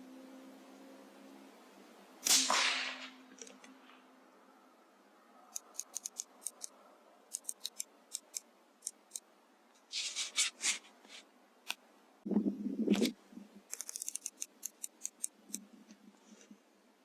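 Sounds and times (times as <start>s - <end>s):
small sharp clicks: 5.6s - 9.3s, 13.7s - 16.0s
scraping sounds: 9.8s - 11.3s.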